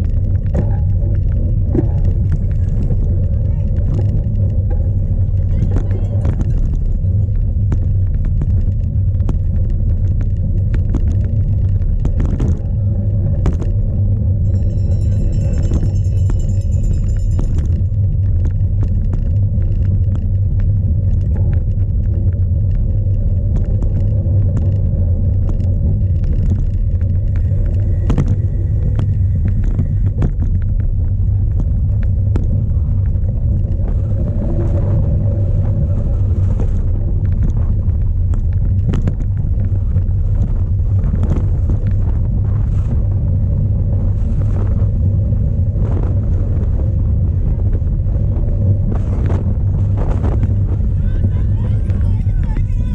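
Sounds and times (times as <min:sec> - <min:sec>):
bike clicks and rattles: 0:00.0 - 0:42.2
wind buffeting microphone: 0:00.0 - 0:52.9.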